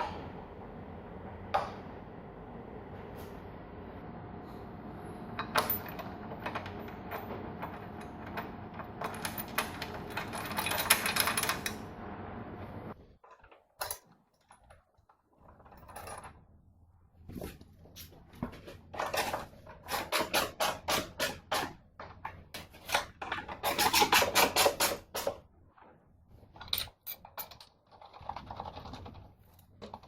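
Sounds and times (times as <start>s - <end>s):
steady background hum: 0.0s - 13.2s
metallic clicks and clatters: 5.4s - 11.9s.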